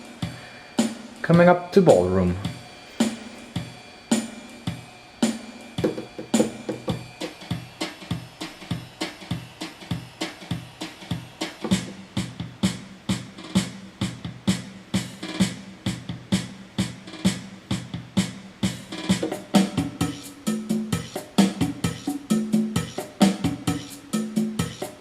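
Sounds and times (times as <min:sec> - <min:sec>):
keyboard ballroom accompaniment: 0:05.2 - 0:17.4, 0:18.7 - 0:25.0.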